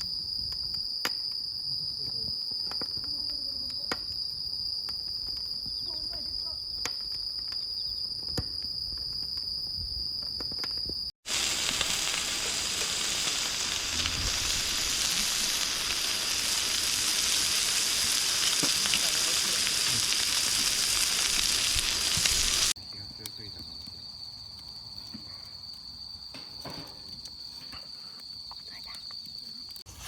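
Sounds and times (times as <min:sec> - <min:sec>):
insects trilling: 0:00.0 - 0:30.0
food sizzling: 0:11.2 - 0:22.8.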